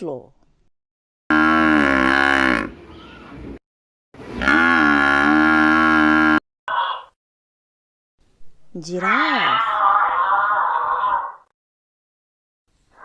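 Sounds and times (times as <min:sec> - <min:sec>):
buffalo mooing: 0:01.3 - 0:03.2, 0:04.4 - 0:07.0.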